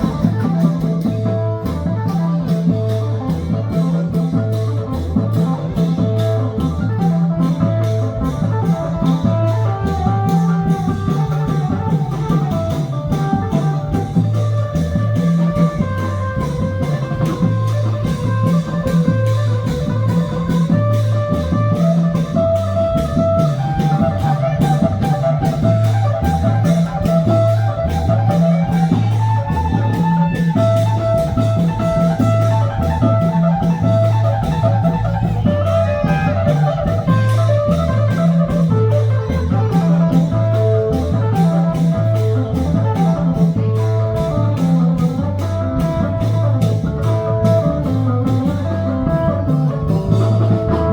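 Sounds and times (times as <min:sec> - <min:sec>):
fast drum beat: 0:00.0 - 0:50.9
festive band music: 0:00.0 - 0:50.9.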